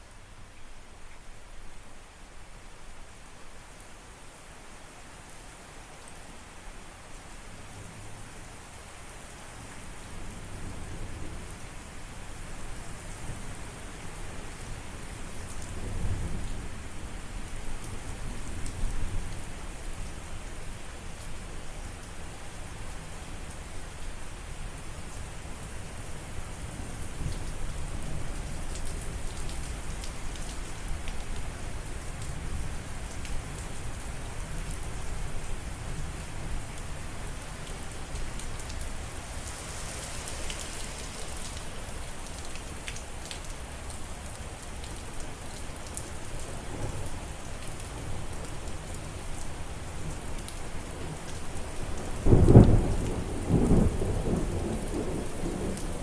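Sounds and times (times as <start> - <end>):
steady rain: 0.0 - 56.0
thunder clap and rumble: 52.3 - 55.9.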